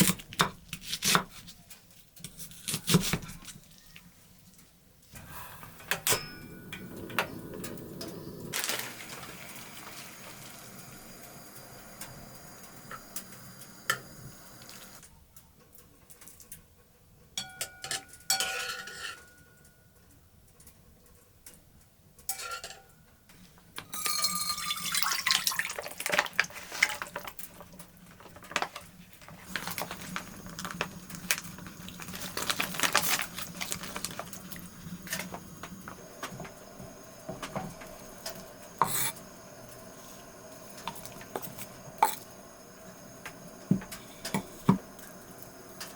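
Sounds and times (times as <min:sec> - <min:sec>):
dishes and utensils clinking: 0:05.9 - 0:07.7, 0:40.8 - 0:42.3.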